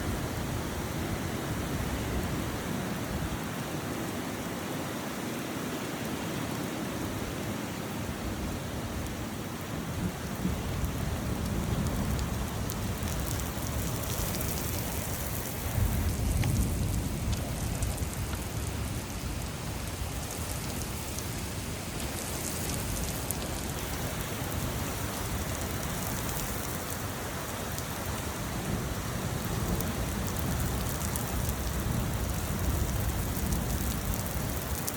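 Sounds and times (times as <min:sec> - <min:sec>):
steady rain: 0:00.0 - 0:34.9
distant thunder rumbles: 0:10.4 - 0:18.4.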